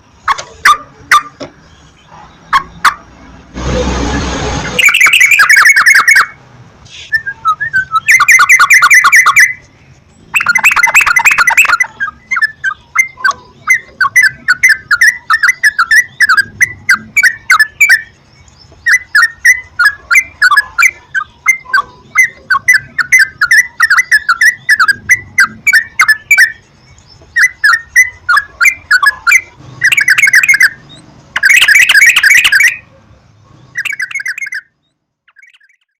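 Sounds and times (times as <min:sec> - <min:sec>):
bulbuls chattering song: 0:00.0 - 0:03.5, 0:04.6 - 0:35.9.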